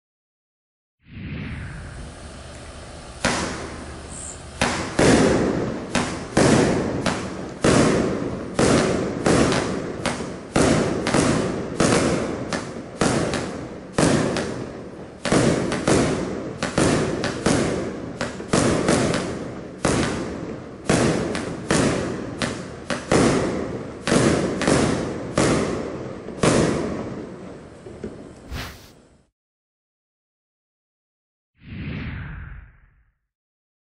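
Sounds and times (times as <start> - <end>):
firework hissing: 1.2 - 12.2, 28.4 - 29.0
firework bangs: 3.1 - 29.0.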